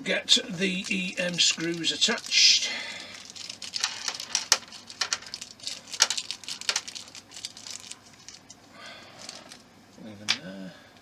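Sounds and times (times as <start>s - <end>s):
plastic parts clicking and tapping: 3.1s - 8.5s.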